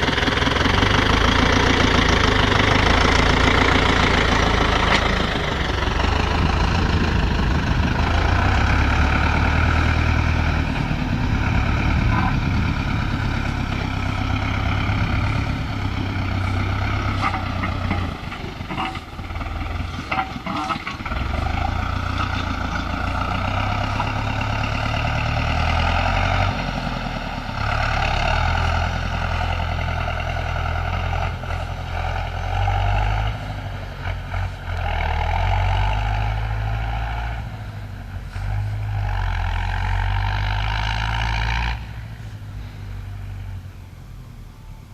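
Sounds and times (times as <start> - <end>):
engine knocks: 0.0 - 28.6
tractor diesel engine rumbling: 0.0 - 44.9.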